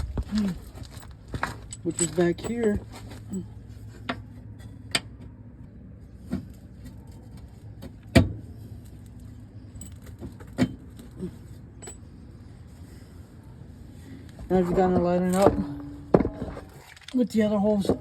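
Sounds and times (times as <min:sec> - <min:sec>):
metal tools clinking: 0:00.0 - 0:04.9, 0:09.6 - 0:12.2, 0:14.6 - 0:18.0
steady low hum: 0:00.0 - 0:17.1.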